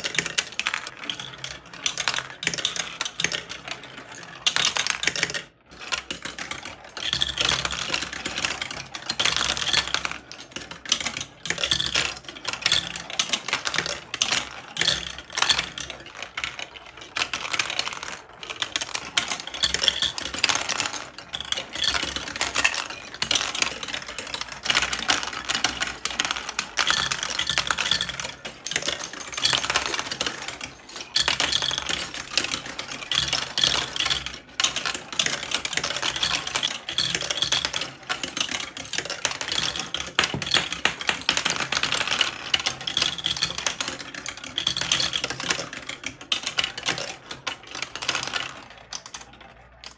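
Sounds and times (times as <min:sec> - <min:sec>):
plastic marble run clattering: 0:00.0 - 0:49.9.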